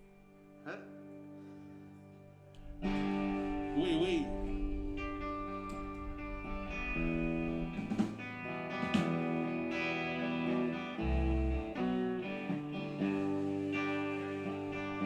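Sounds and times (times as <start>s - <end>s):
guitar playing chords: 0.0s - 15.0s.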